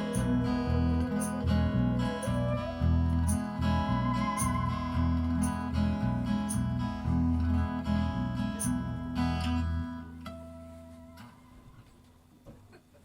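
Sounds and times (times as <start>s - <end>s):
low bass line: 0.0s - 9.9s
strummed acoustic guitar: 0.0s - 11.4s.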